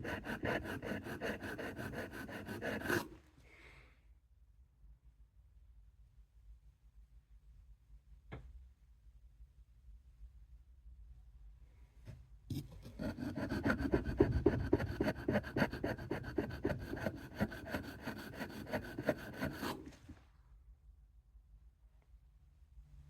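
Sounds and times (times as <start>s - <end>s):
knife grinding on sharpening stone: 0.0s - 3.0s, 12.5s - 20.0s.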